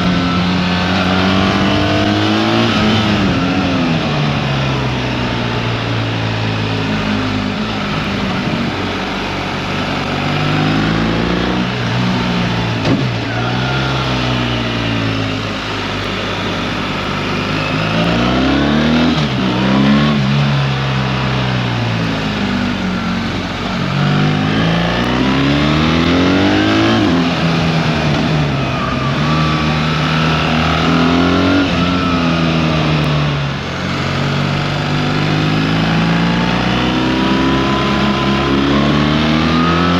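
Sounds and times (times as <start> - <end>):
motorcycle engine accelerating: 0.0 - 39.9
steady rush of noise: 0.0 - 39.9.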